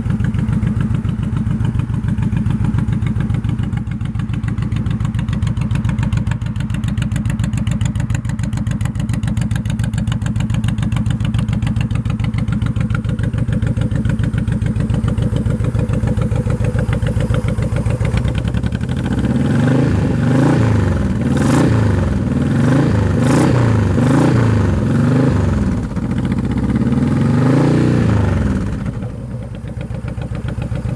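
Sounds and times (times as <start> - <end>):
motorcycle engine idling and revving: 0.0 - 30.9.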